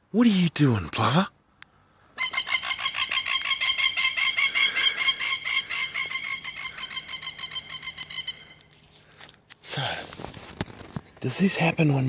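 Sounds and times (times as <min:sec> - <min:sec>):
plover calling: 0:02.0 - 0:09.2.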